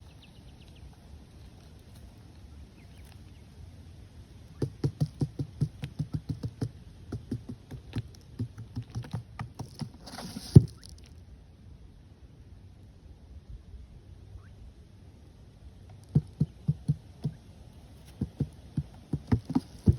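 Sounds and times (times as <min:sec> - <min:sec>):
quick repeated knocks: 0:04.6 - 0:10.0, 0:16.0 - 0:17.4, 0:18.0 - 0:19.9.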